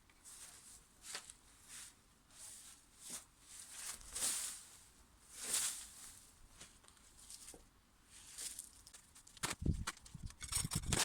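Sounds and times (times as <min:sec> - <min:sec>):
soft rustling swishes: 0:00.2 - 0:08.7.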